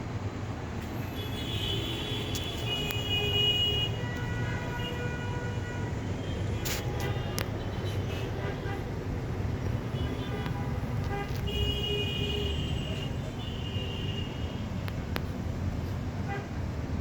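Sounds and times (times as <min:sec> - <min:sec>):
street traffic: 0:00.0 - 0:17.0
vehicle horn: 0:01.1 - 0:08.9, 0:09.9 - 0:14.7.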